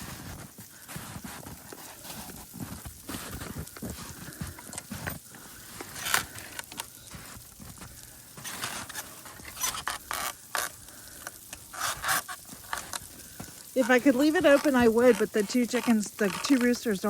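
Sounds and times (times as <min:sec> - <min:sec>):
footsteps crunching through snow: 0:00.0 - 0:10.7.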